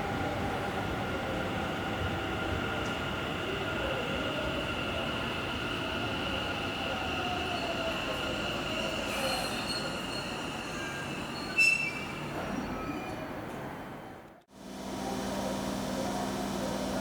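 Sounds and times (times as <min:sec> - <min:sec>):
train wheels and brakes squealing: 0:05.7 - 0:13.3
sharp squeak: 0:08.8 - 0:13.2.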